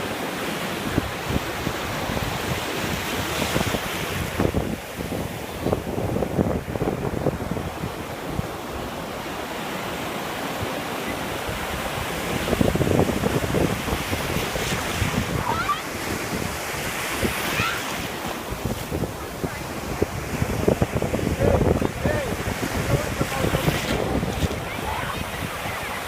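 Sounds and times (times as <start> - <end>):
ocean surf washing on beach: 0.0 - 26.0
wind buffeting microphone: 0.8 - 9.3, 10.6 - 26.0.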